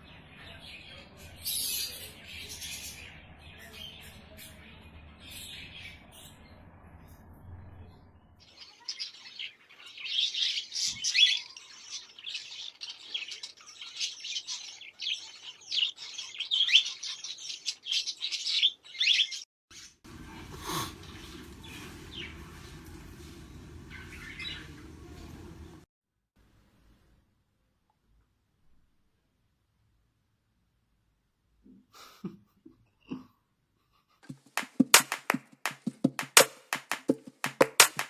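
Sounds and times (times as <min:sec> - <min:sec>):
bird chirping and twittering: 0:08.4 - 0:20.0.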